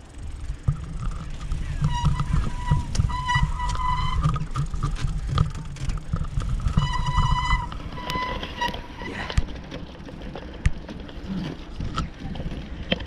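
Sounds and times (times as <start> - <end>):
high steady squeal: 0.0 - 9.4
wind buffeting microphone: 0.0 - 13.0.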